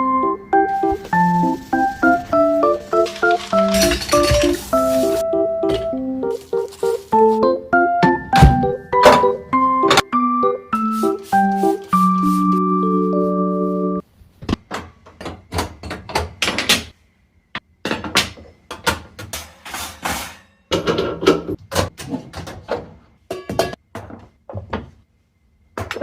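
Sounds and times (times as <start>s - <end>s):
knocks thunks and scrapes of metal parts: 2.3s - 6.0s, 8.0s - 10.1s, 17.8s - 25.0s.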